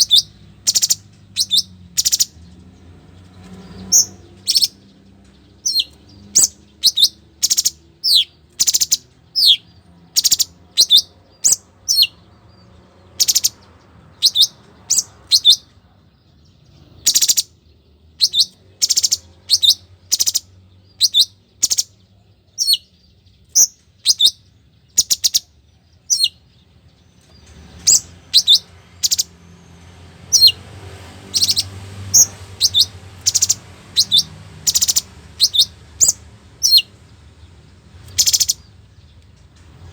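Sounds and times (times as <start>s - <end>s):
songbird whistling: 0.0s - 2.4s, 3.8s - 4.8s, 5.6s - 12.2s, 13.2s - 15.7s, 17.0s - 17.5s, 18.2s - 21.9s, 22.6s - 22.9s, 23.5s - 26.4s, 27.7s - 29.3s, 30.3s - 30.6s, 31.3s - 36.9s, 38.0s - 38.7s.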